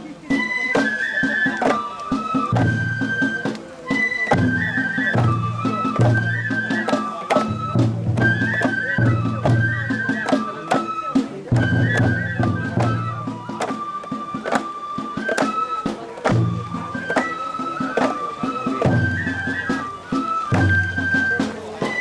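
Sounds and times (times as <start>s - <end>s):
flute melody: 0.0s - 22.0s
pulsing drum beats: 0.0s - 22.0s
sharp percussive strikes: 10.2s - 22.0s.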